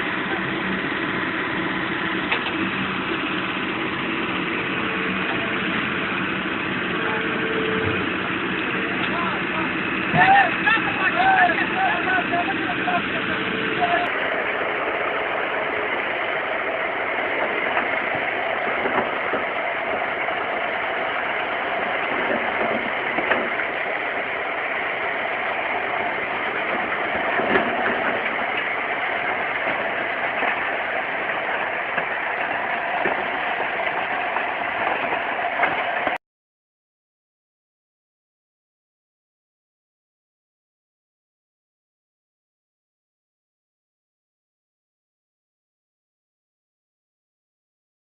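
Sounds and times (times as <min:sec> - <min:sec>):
heavy machine engine running: 0:00.0 - 0:36.2.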